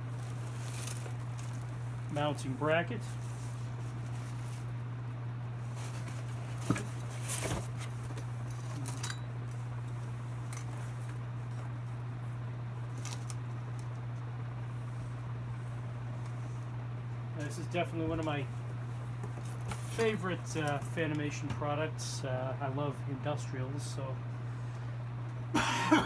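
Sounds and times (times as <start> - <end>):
parts and packaging rustling: 0.0 - 4.8, 5.6 - 9.6, 19.0 - 21.0
steady low hum: 0.0 - 26.0.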